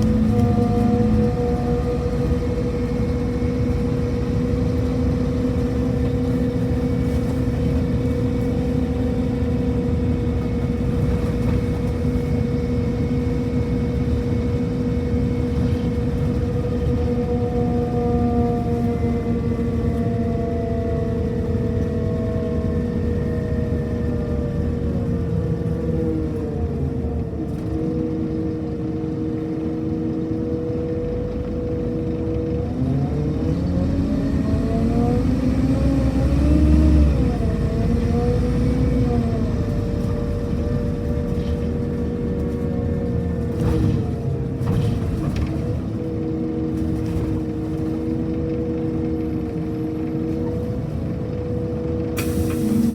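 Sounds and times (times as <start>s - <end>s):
bus engine whine: 0.0s - 52.9s.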